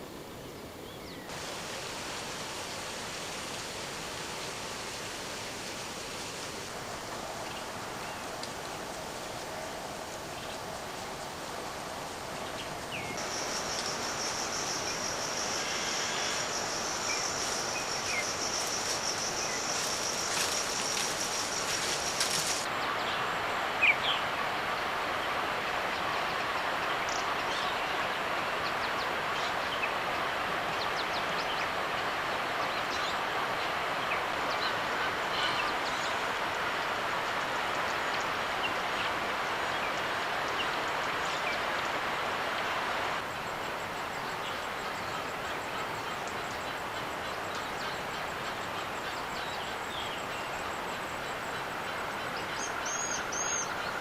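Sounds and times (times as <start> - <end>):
steady rushing noise: 1.3 - 27.5.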